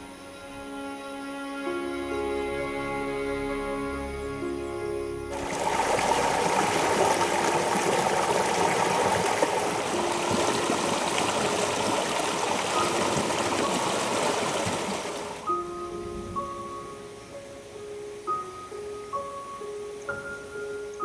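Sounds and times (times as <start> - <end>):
faint soft music: 0.0 - 21.0
river water flowing: 5.3 - 21.0.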